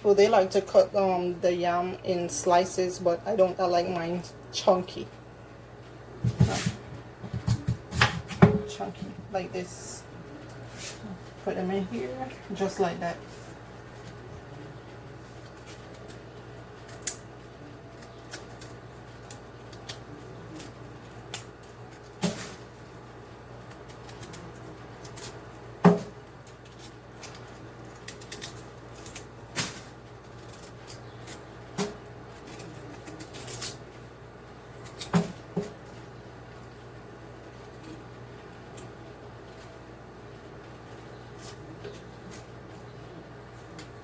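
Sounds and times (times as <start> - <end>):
knife knocking on cutting board: 7.2 - 8.7.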